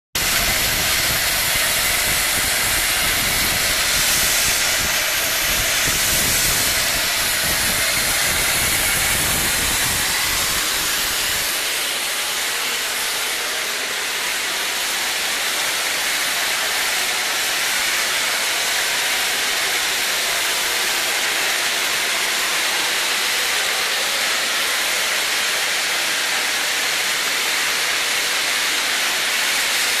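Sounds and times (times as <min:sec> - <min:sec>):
steam hissing from boiler: 0:00.2 - 0:30.0.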